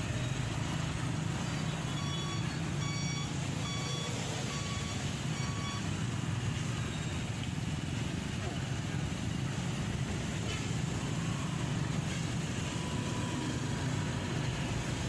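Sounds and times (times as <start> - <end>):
road noise: 0.0 - 15.0
high electronic beeps: 1.5 - 6.0.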